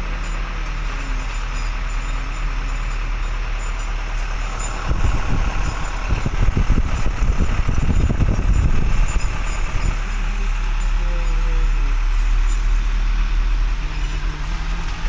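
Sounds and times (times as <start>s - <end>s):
truck engine running: 0.0s - 15.0s
rough low rumble: 3.4s - 14.0s.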